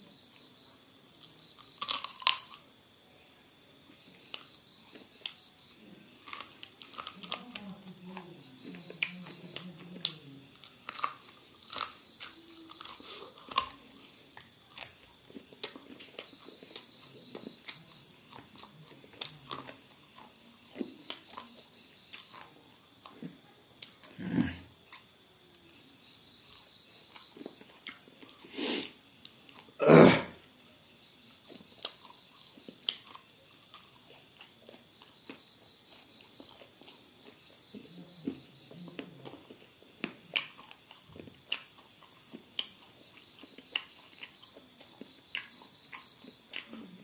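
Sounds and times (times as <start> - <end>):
person biting and chewing food: 0.4 - 3.0, 6.1 - 25.2, 31.3 - 37.8, 39.0 - 46.9.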